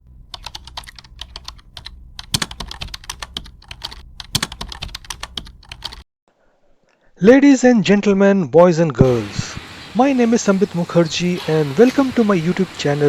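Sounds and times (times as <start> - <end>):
rapid typing on a keyboard: 0.3 - 6.0.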